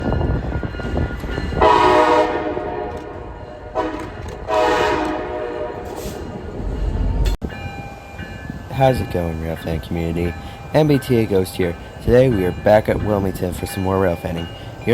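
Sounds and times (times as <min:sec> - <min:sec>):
low rumble of a train: 0:00.0 - 0:14.9
locomotive horn blasts: 0:01.6 - 0:06.2.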